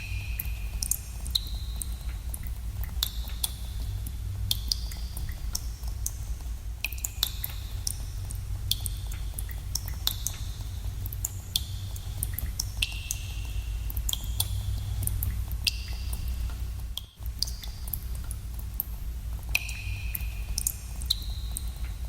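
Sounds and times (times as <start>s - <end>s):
water drops plinking into pool: 6.8s - 8.0s, 19.5s - 21.9s.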